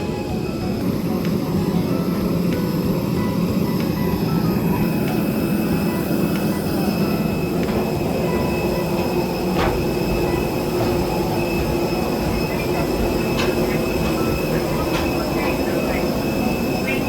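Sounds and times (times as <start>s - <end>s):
faint high steady tones: 0.0s - 17.0s
train rumbling on rails: 0.0s - 17.0s.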